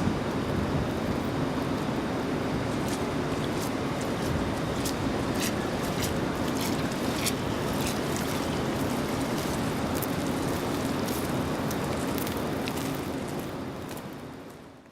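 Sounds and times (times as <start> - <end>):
steady rain: 0.0 - 14.9.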